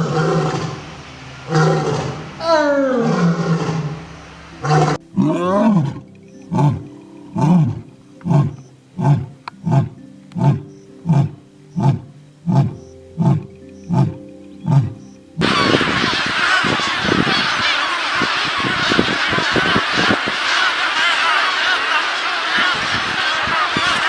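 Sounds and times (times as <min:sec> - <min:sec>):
big cat roaring: 0:00.0 - 0:00.8, 0:01.4 - 0:14.9.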